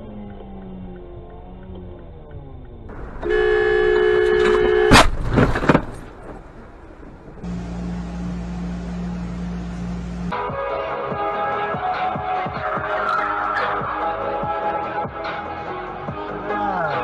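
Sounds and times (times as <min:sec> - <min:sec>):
steady low drone: 0:00.0 - 0:10.3
knocks: 0:02.9 - 0:07.4
car horn blaring: 0:02.9 - 0:07.5
loud crash impact: 0:02.9 - 0:07.5.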